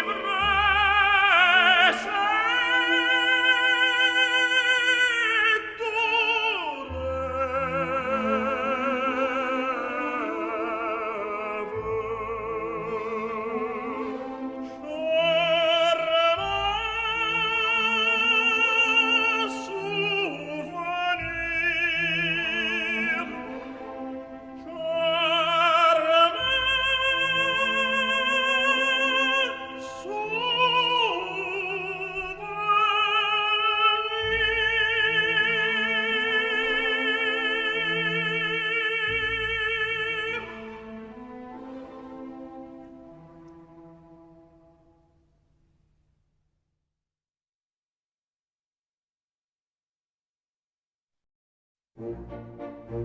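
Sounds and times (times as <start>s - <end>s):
operatic voice singing: 0.0s - 42.3s
orchestral accompaniment: 0.0s - 45.2s, 52.0s - 53.0s.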